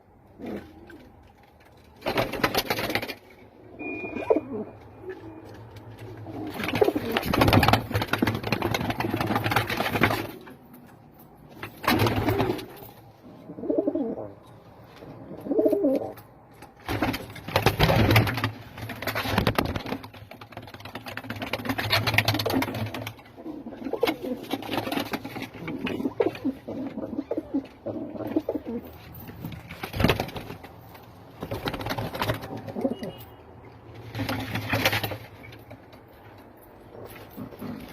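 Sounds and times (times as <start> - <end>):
loud rustling bursts: 6.5 - 10.6
pigeons cooing: 13.2 - 14.4, 23.4 - 24.8, 25.5 - 29.0.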